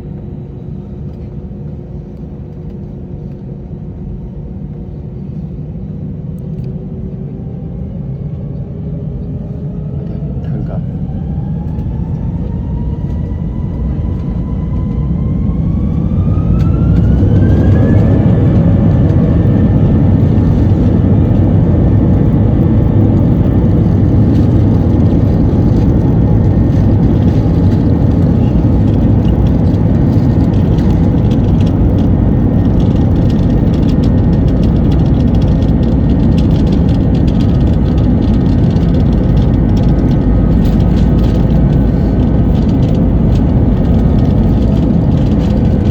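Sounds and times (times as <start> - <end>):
jet engines spooling up: 9.2 - 45.9.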